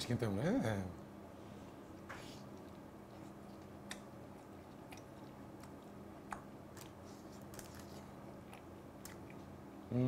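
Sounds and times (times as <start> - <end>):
man chewing: 1.9 - 9.8.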